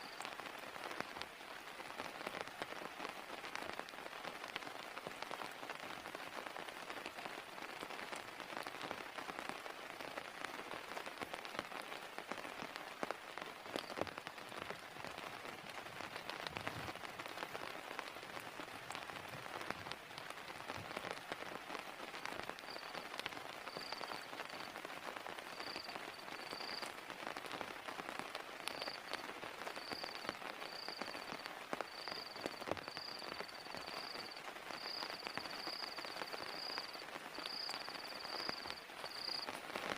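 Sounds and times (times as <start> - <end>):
heavy rain: 0.0 - 39.9
faint high chirp: 22.7 - 23.1, 23.7 - 24.7, 25.5 - 26.8.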